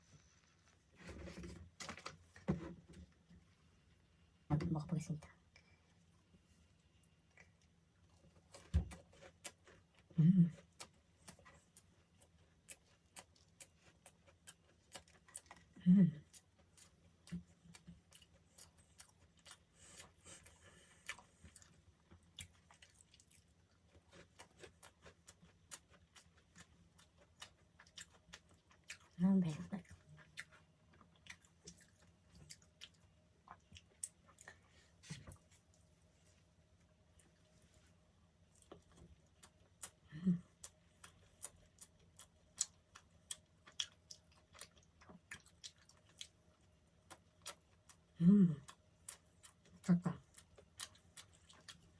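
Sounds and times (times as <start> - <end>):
person chewing pastry: 7.2 - 51.9
wet chewing mouth clicks: 40.6 - 46.4
person humming: 48.2 - 48.6.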